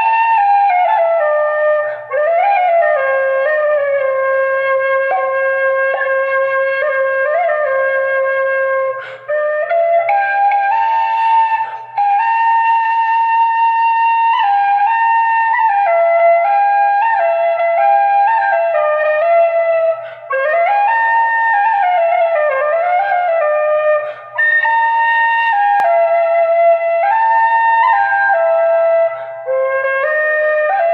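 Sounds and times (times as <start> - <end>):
flute melody: 0.0 - 30.9
flute player breaths: 1.8 - 2.2, 8.9 - 9.4, 11.5 - 12.0, 20.0 - 20.4, 24.0 - 24.5, 29.1 - 29.5.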